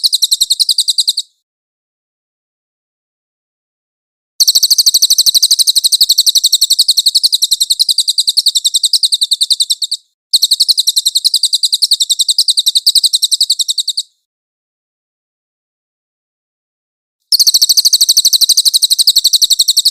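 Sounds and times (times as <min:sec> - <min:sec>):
bird high-pitched trill: 0:00.0 - 0:01.4, 0:04.4 - 0:14.2, 0:17.3 - 0:19.9.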